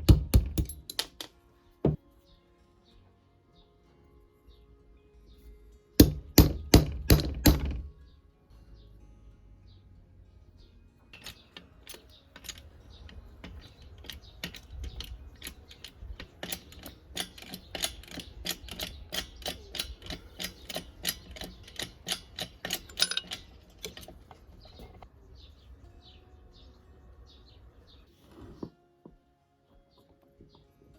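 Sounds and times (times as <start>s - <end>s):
sharp mechanical clicks: 11.2s - 24.2s.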